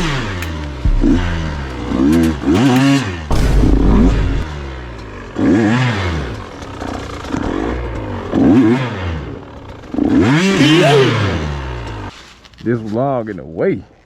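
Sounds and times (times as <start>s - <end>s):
dirt bike engine revving: 0.0s - 12.1s.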